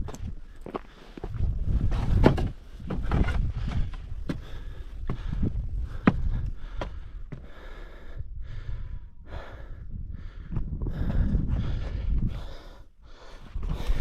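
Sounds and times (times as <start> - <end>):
person breathing hard: 3.5 - 14.0.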